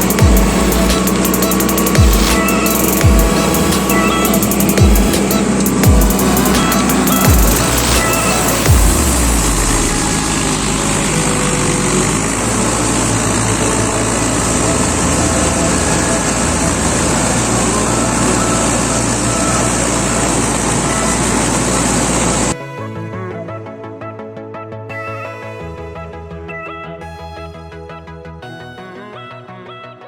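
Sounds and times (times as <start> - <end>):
tractor diesel engine under load: 0.0 - 22.6.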